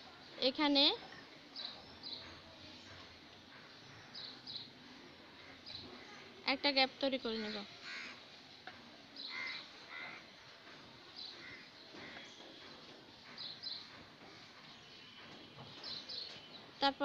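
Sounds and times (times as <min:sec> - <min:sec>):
faint bird calls: 0:07.4 - 0:08.2, 0:09.2 - 0:16.5.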